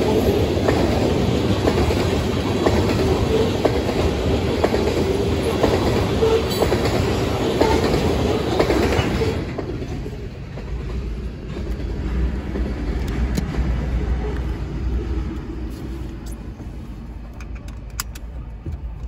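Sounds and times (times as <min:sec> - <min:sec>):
freight train rolling past: 0:00.0 - 0:18.9.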